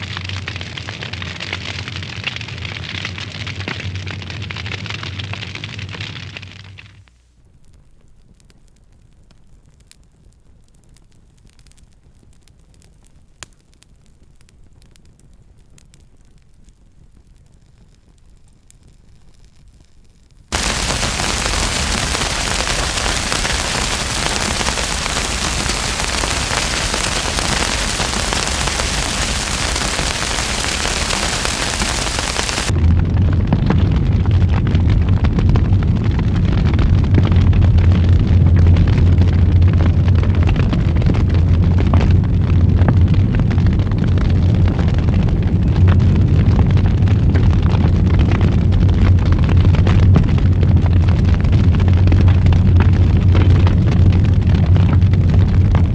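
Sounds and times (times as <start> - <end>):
wood fire crackling: 0.0 - 55.9
fire roaring: 20.5 - 55.9.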